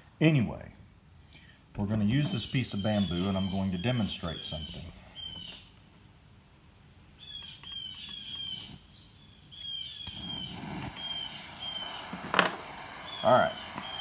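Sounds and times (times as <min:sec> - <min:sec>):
faint hiss: 0:00.0 - 0:14.0
bird whistling calls: 0:02.2 - 0:05.7, 0:07.2 - 0:12.2, 0:13.0 - 0:14.0.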